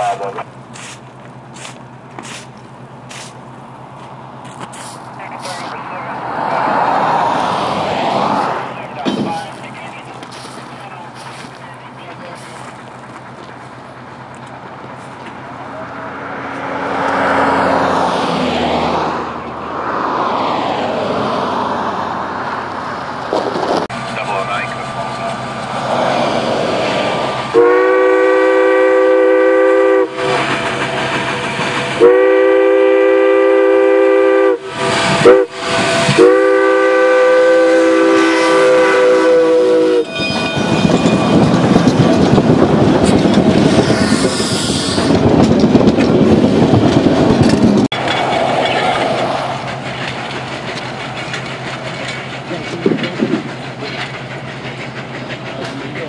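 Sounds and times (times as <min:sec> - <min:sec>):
quiet train rumble: 0:00.0 - 0:56.0
train rushing past: 0:00.0 - 0:56.0
steam locomotive chime whistle: 0:27.5 - 0:30.8, 0:31.9 - 0:41.6.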